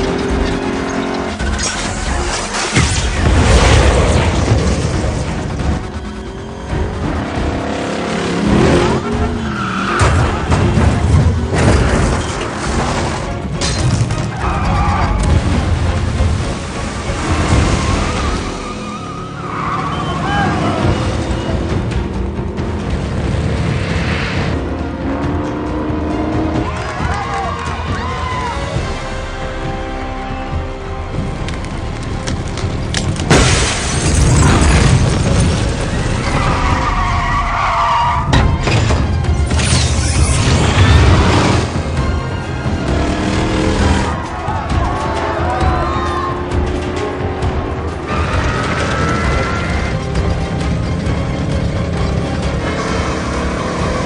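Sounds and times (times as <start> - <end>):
car engines running hard: 0.0 - 54.0
dramatic film music: 0.0 - 54.0
tyres screeching: 17.5 - 21.7, 35.8 - 47.0
booming crashes: 33.2 - 36.8.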